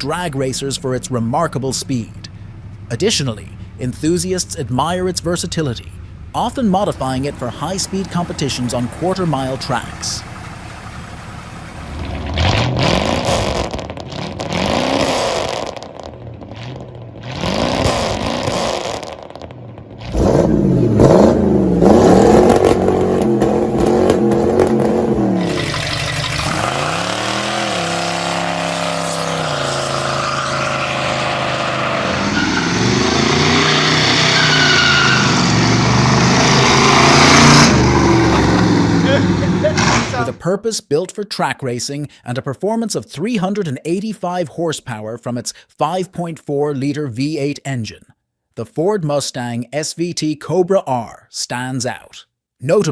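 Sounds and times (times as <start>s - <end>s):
car engine revving: 0.0s - 40.4s.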